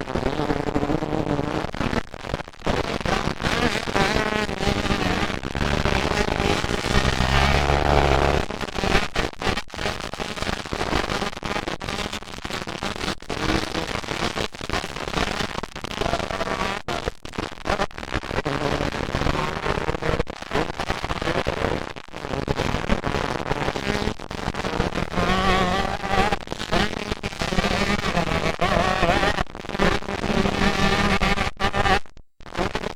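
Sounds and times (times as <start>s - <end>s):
exhaust pops crackling: 3.8s - 8.6s
dirt bike engines racing: 4.2s - 8.5s.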